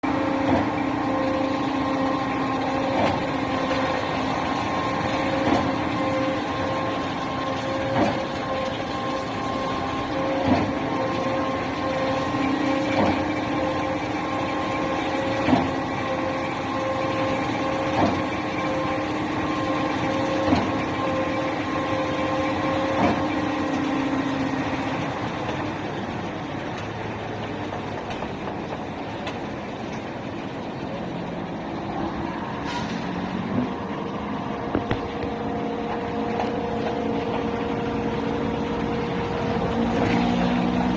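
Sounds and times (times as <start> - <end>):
concrete pump clunks: 0.0 - 31.0, 32.5 - 40.9
engine drone: 0.0 - 40.9.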